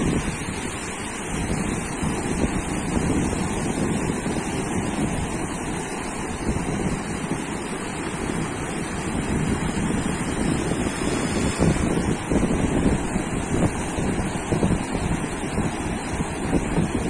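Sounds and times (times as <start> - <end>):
sea surf washing onto beach: 0.0 - 17.0
wind buffeting microphone: 0.0 - 17.0.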